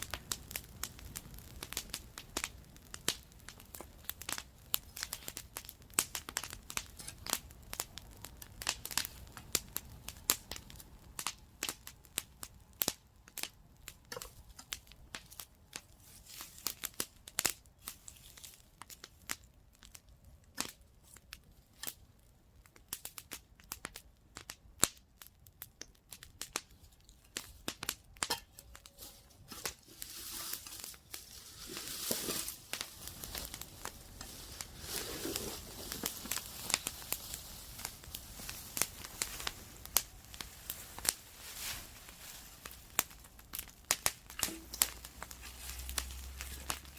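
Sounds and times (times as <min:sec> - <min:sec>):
fire hissing: 0:00.0 - 0:12.8, 0:26.5 - 0:46.9
wood campfire crackling: 0:00.0 - 0:46.9.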